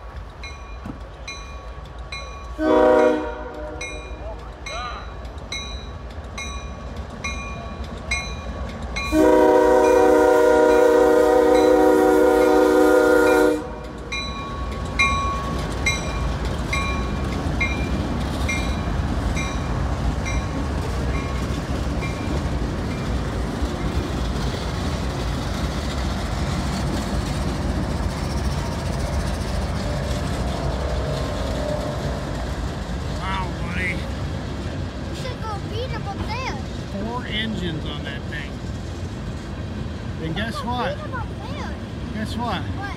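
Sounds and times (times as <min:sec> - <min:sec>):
train rumbling: 0:00.0 - 0:42.9
railroad crossing bell dinging: 0:00.2 - 0:23.2
locomotive horn blast: 0:02.6 - 0:03.9, 0:09.1 - 0:13.8.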